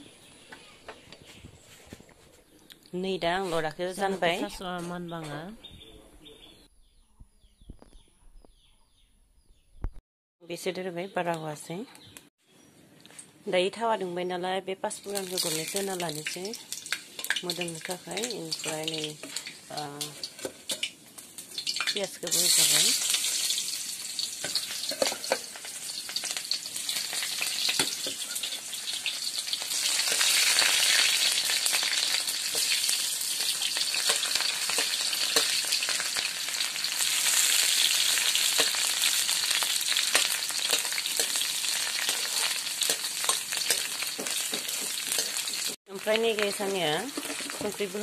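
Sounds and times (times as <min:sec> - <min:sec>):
onions sizzling in hot oil: 0:15.0 - 0:48.0.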